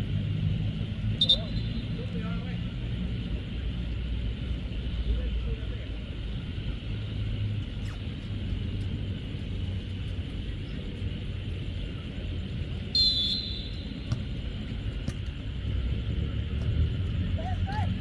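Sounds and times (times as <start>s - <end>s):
steady low rumble: 0.0s - 18.0s
referee's whistle blast: 1.2s - 1.8s, 12.9s - 14.0s.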